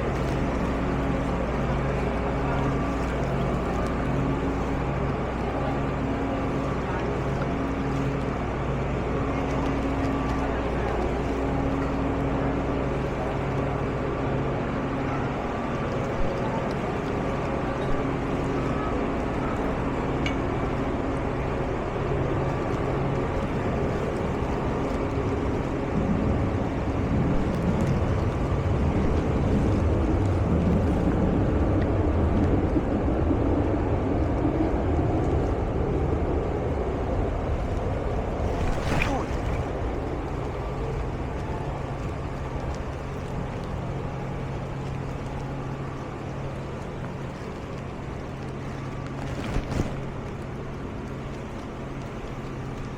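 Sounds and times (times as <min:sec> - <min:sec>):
rough rushing noise: 0:38.2 - 0:40.0.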